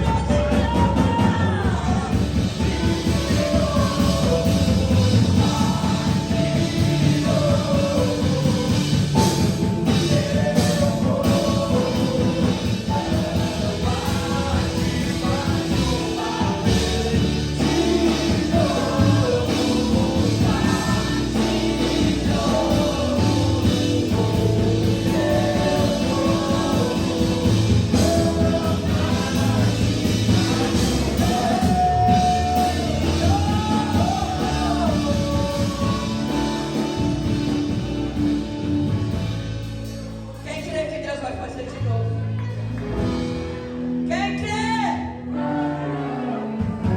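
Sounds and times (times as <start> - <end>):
person singing: 0.0 - 37.2
rock band worship music: 0.0 - 46.9.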